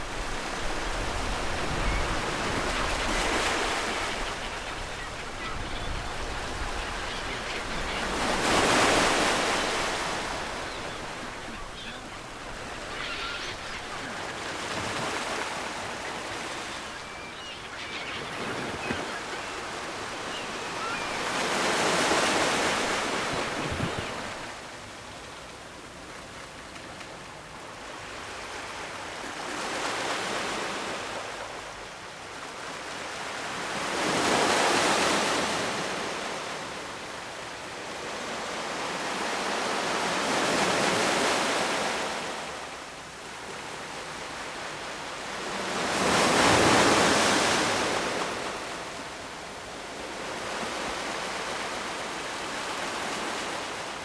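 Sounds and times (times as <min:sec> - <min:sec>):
ocean waves breaking: 0:00.0 - 0:24.7.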